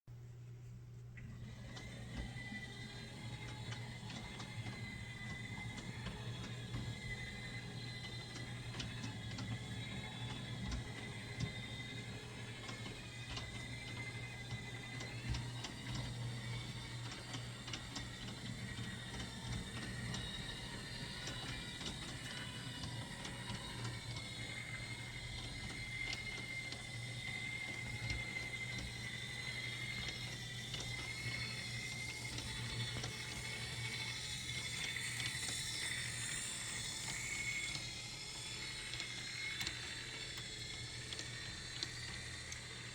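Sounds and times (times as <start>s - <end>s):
model train gears whirring: 1.3s - 42.9s
small clicks: 12.6s - 42.9s.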